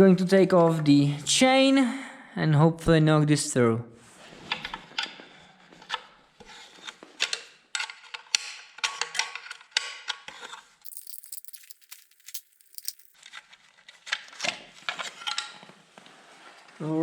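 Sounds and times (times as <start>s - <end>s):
metal tools clinking: 10.9s - 13.2s.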